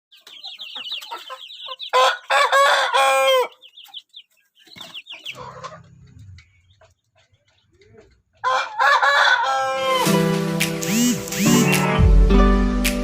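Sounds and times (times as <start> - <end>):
rooster crowing: 1.9 - 3.6, 8.4 - 10.1
rapid high chirping: 10.8 - 12.0.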